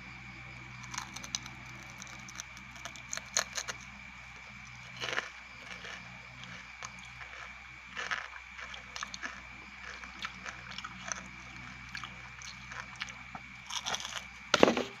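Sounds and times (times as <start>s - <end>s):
crunchy chewing: 0.0s - 14.5s
faint high whine: 0.0s - 15.0s
loud thump: 14.6s - 14.9s.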